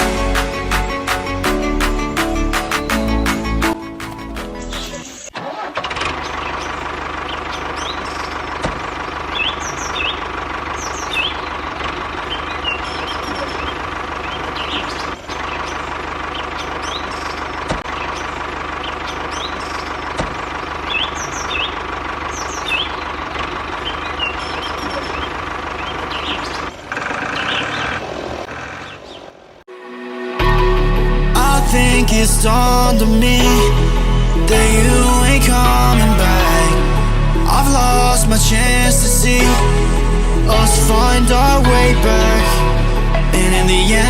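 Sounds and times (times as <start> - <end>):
birds chirping: 0.0 - 5.4, 6.1 - 29.7
engine idling: 0.0 - 29.7, 30.8 - 44.0.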